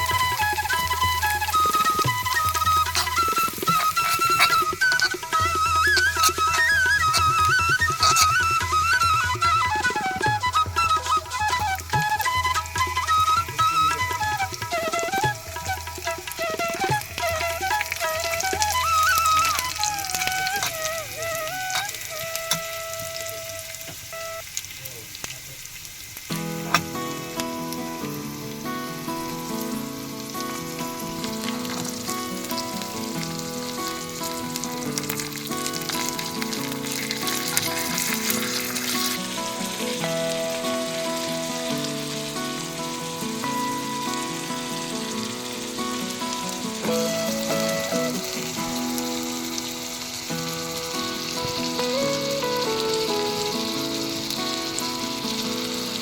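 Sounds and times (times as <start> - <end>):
background music with melody: 0.0 - 24.4, 26.3 - 56.0
food sizzling in a pan: 0.0 - 56.0.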